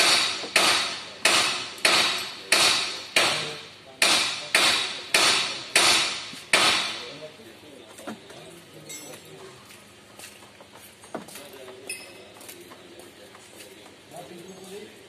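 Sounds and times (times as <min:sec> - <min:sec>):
hammer blows ringing: 0:00.0 - 0:07.2.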